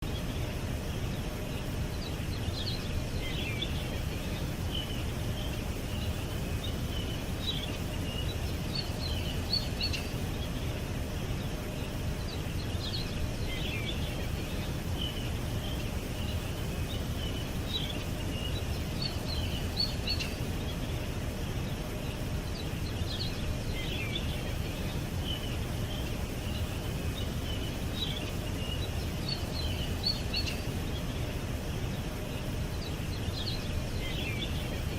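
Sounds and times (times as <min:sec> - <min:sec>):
birds chirping: 0:00.0 - 0:34.9.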